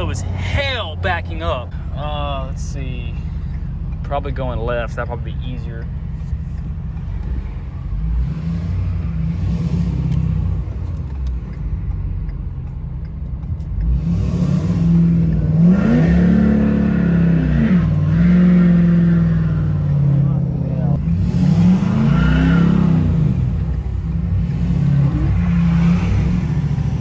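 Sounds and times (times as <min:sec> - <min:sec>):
truck engine revving under load: 0:05.8 - 0:27.0.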